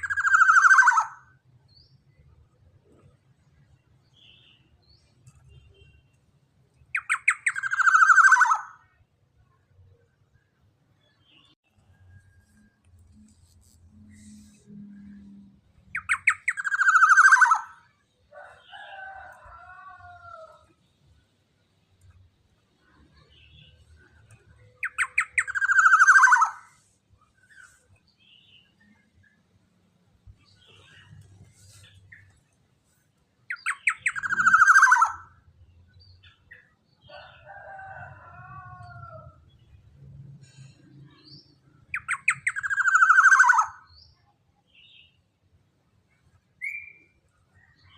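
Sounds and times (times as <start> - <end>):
bird calling with trills: 0.0 - 1.4, 7.0 - 9.0, 15.9 - 17.9, 24.6 - 26.9, 33.5 - 35.4, 41.9 - 43.9.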